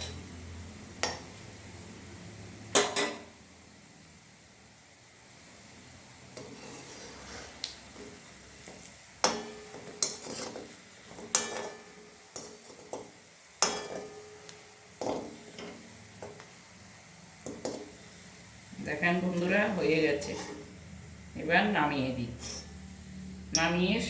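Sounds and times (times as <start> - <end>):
sweets frying in oil: 0.0 - 24.0
metal utensil scraping pan: 6.4 - 14.4, 15.0 - 16.4, 20.1 - 20.7.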